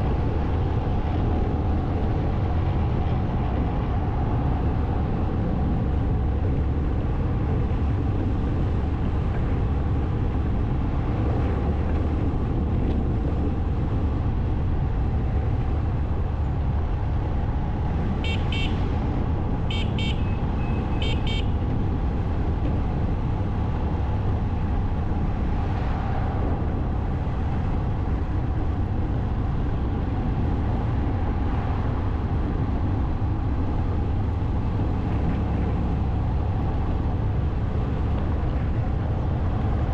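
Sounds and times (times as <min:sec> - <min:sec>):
motorcycle engine and wind rumble: 0:00.0 - 0:39.9
vehicle horn beeps: 0:18.2 - 0:18.8, 0:19.7 - 0:21.6.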